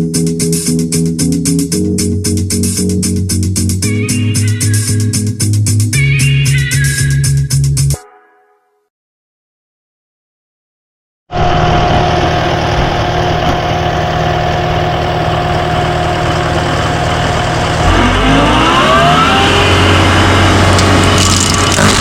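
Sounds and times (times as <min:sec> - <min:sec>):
engine running and revving: 0:11.4 - 0:22.0.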